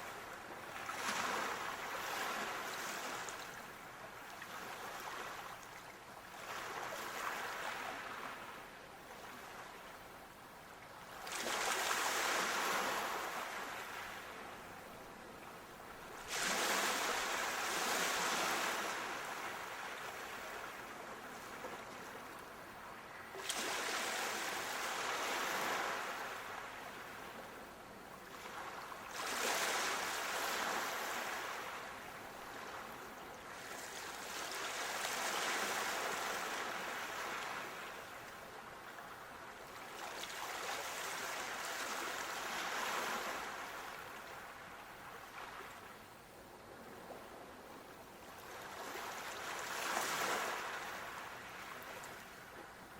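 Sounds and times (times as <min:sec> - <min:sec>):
ocean waves breaking: 0:16.1 - 0:27.4, 0:28.3 - 0:32.9, 0:48.4 - 0:52.4.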